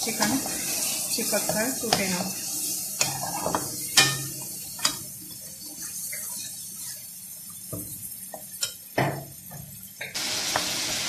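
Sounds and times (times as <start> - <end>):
chicken sizzling in hot oil: 0.0 - 11.0
metal spoon scraping pan: 3.0 - 5.0.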